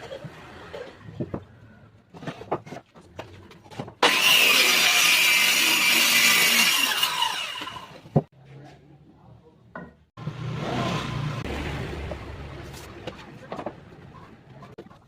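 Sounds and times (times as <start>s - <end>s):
power saw cutting wood: 4.0s - 8.1s.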